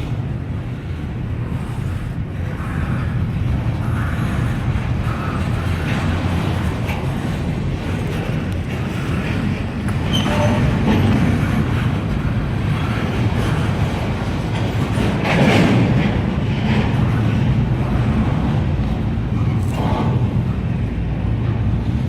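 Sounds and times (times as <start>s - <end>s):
train wheels rumbling on rails: 0.0s - 22.0s
faint wheel squeal: 10.0s - 10.8s.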